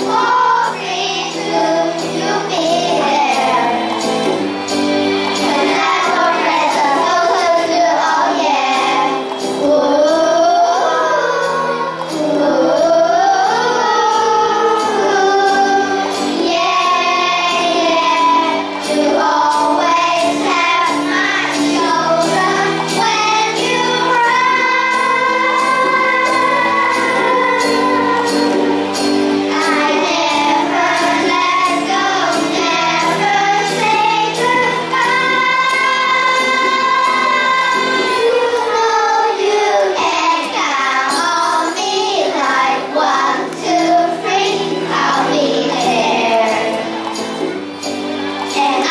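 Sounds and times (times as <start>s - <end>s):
children singing in unison: 0.0s - 48.9s.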